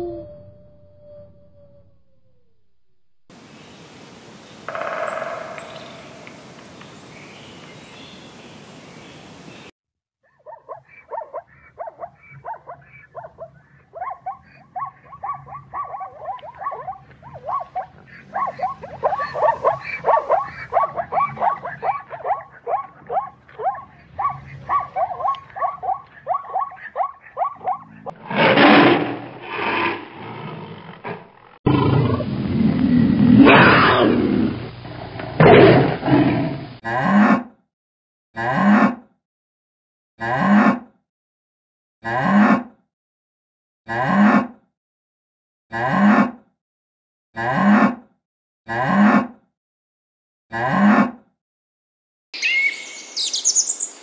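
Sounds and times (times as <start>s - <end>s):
animal calls: 10.5s - 29.0s.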